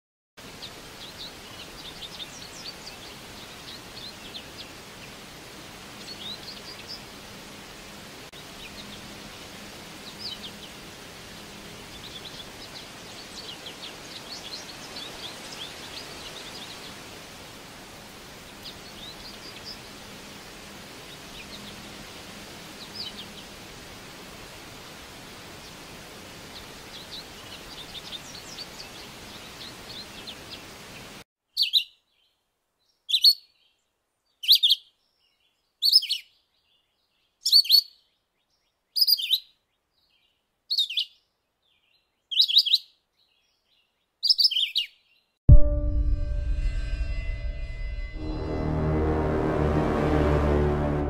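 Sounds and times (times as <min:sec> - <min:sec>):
outdoor background hiss: 0:00.4 - 0:45.4
small birds chirping: 0:00.5 - 0:07.2, 0:11.7 - 0:17.1, 0:18.4 - 0:22.0, 0:22.7 - 0:23.6, 0:25.6 - 0:45.4.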